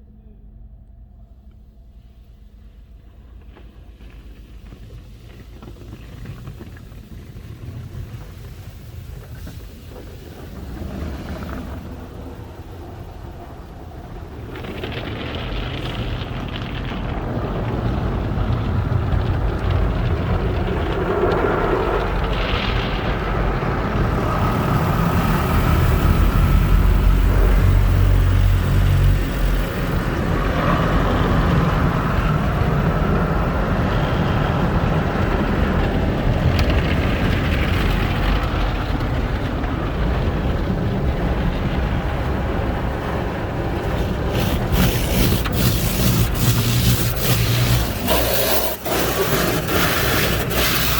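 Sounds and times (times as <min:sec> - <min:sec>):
low rumble: 0:00.0 - 0:50.9
car wash equipment working: 0:22.5 - 0:32.8, 0:42.8 - 0:50.9
spraying water: 0:23.9 - 0:31.1, 0:43.7 - 0:50.9.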